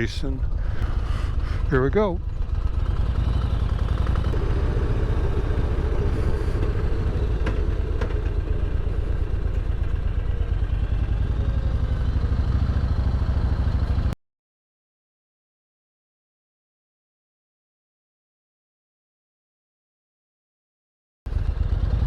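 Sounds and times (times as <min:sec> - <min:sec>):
motorcycle engine rumble: 0:00.0 - 0:14.2, 0:21.3 - 0:22.0.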